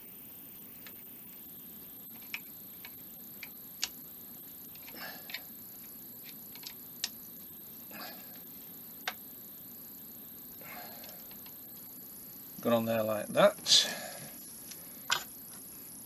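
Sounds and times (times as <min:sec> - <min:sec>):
sharp clicks and taps of small parts: 0:06.2 - 0:07.2.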